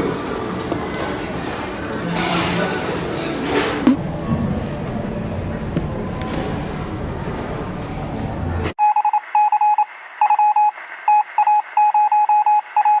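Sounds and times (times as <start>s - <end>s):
busy background noise: 0.0s - 8.8s
electronic beeps: 8.8s - 13.0s.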